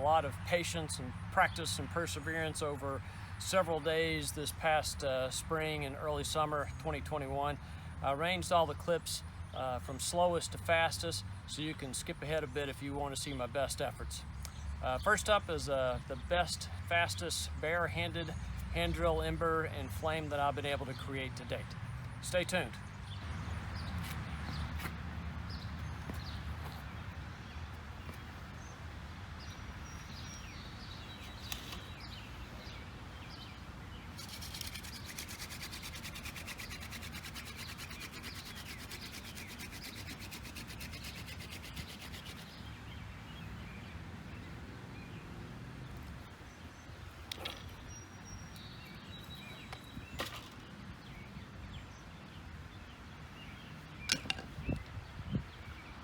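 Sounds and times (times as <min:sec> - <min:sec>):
wooden spindle rubbing on board: 0:34.2 - 0:42.6.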